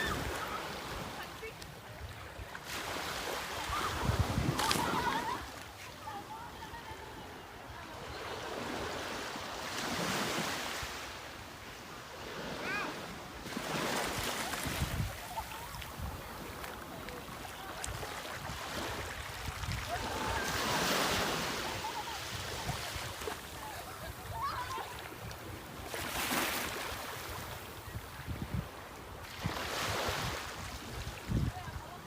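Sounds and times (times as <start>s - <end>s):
sea waves breaking: 0.0s - 27.9s
wind buffeting microphone: 3.6s - 5.5s.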